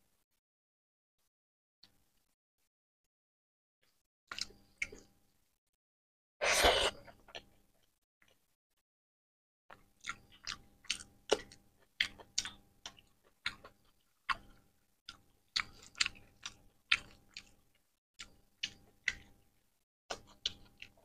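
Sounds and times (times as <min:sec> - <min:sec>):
person chewing food: 0:09.7 - 0:19.4, 0:20.1 - 0:21.0.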